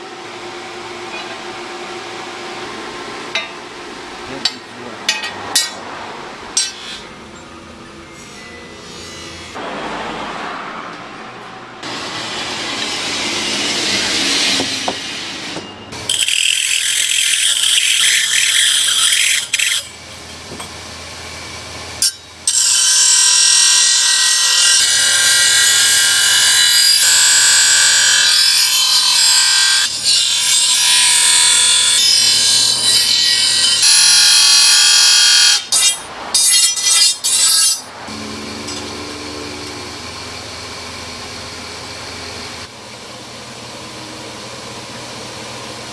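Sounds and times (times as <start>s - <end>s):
power tool grinding whine: 16.0s - 20.7s.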